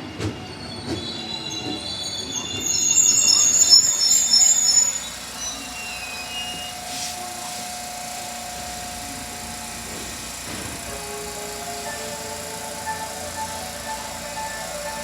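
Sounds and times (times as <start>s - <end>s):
train wheels squealing: 0.0s - 11.1s
mechanical whirr with high whine: 0.8s - 15.0s.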